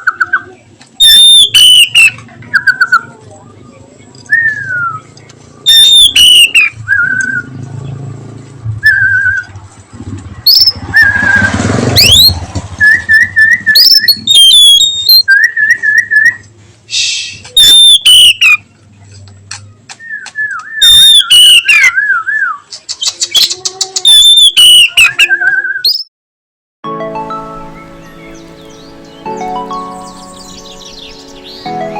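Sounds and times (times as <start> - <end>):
bird singing whistled phrases: 1.0 - 3.1, 4.3 - 5.0, 5.7 - 7.5, 8.8 - 9.5, 10.5 - 16.4, 17.3 - 18.6, 20.0 - 26.1.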